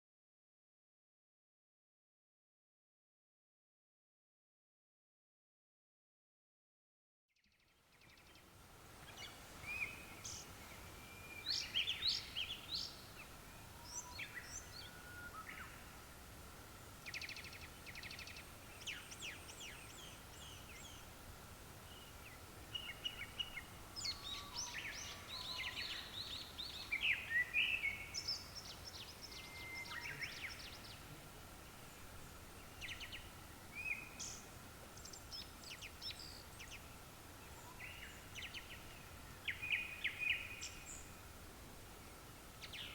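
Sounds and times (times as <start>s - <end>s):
thrushes singing: 8.2s - 16.0s, 21.8s - 41.3s.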